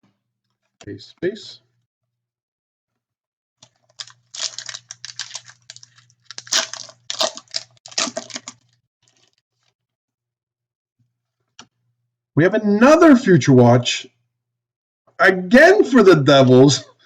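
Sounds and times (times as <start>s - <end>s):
cards shuffling: 3.6s - 9.4s
wrapper crinkling and tearing: 3.6s - 9.7s.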